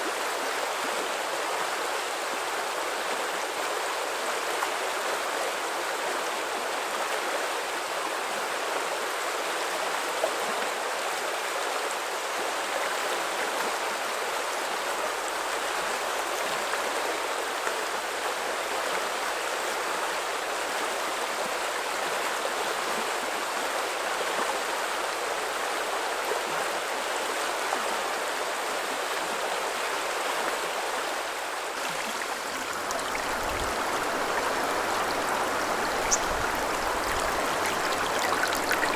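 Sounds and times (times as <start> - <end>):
river babbling over stones: 31.7 - 38.9.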